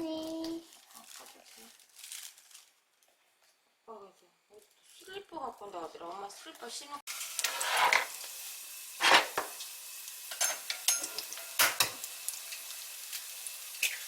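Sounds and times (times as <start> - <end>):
food sizzling in a frying pan: 6.3 - 14.0
utensil clattering against pan: 7.4 - 8.2, 9.0 - 9.6.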